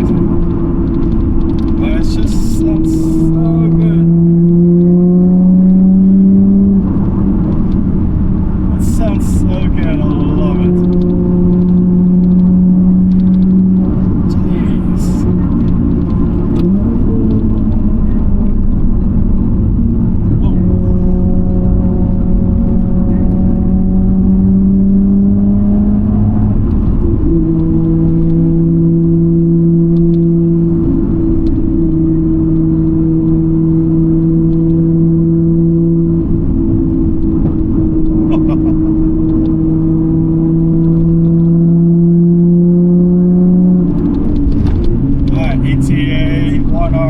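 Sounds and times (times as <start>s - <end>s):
car engine droning: 0.0s - 47.0s
road rumble: 0.0s - 47.0s.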